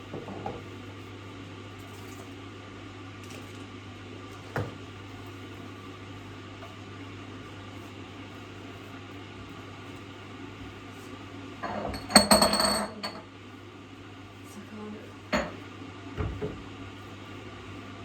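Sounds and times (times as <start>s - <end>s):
dishes and utensils clattering: 11.6s - 13.3s.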